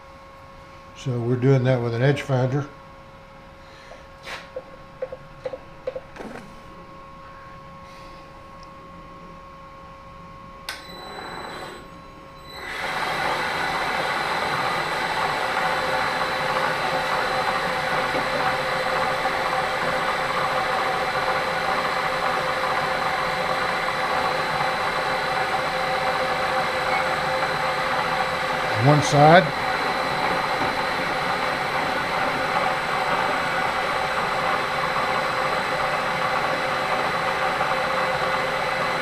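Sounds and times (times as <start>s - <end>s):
click: 10.7s - 10.9s
milling machine spindle motor whine: 10.7s - 39.0s.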